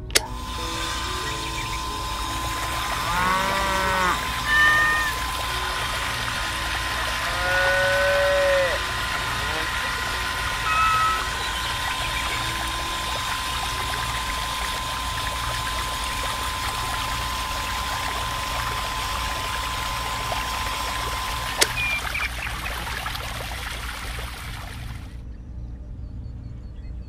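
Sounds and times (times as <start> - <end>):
sharp click: 0.0 - 0.4, 21.5 - 21.9
thin steady tone: 0.3 - 25.0
water pouring into a pool: 0.4 - 25.2.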